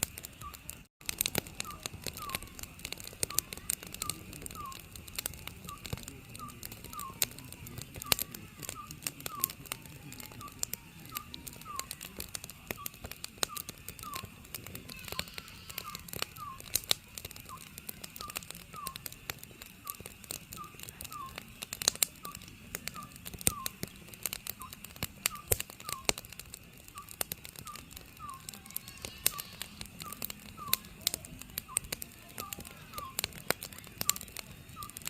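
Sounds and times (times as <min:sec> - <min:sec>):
wood fire crackling and popping: 0:00.0 - 0:35.0
owl hooting: 0:01.6 - 0:04.9, 0:05.7 - 0:16.8, 0:17.5 - 0:19.0, 0:20.6 - 0:21.4, 0:22.2 - 0:23.9, 0:27.0 - 0:31.0, 0:32.9 - 0:33.2.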